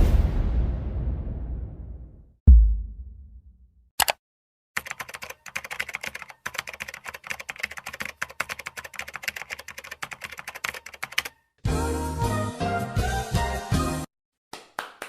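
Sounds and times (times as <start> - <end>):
fast typing on a keyboard: 4.8 - 11.4.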